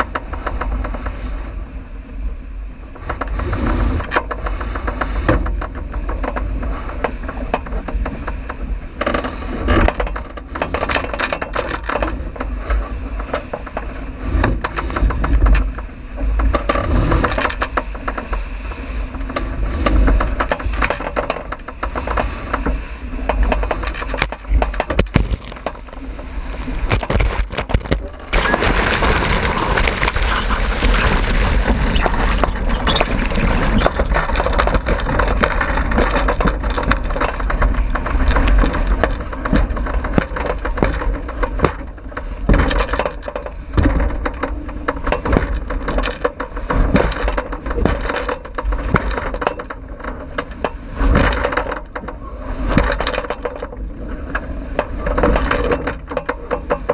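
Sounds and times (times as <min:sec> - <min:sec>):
water rushing along hull: 0:00.0 - 0:56.9
wind buffeting microphone: 0:12.2 - 0:42.6
knocks on boat: 0:19.3 - 0:28.8, 0:33.6 - 0:52.1.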